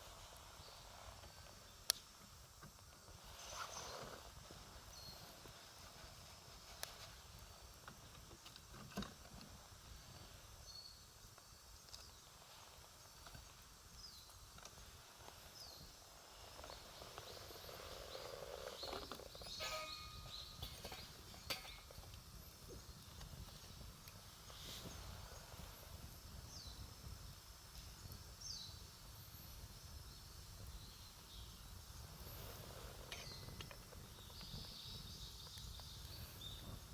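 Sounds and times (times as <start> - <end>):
small birds chirping: 0.0 - 36.9
campfire crackling: 9.4 - 36.9.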